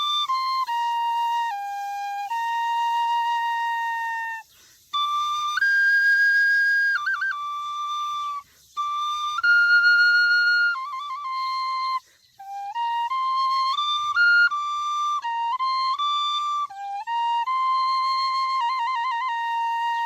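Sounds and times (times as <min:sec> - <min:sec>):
solo flute melody: 0:00.0 - 0:20.0.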